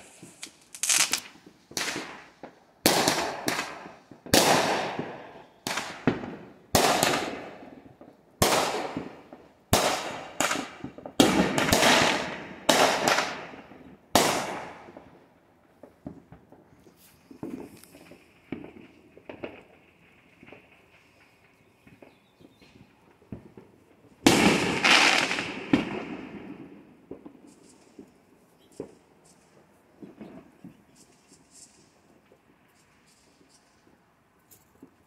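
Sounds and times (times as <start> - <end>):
fireworks bangs: 0.0 - 34.0.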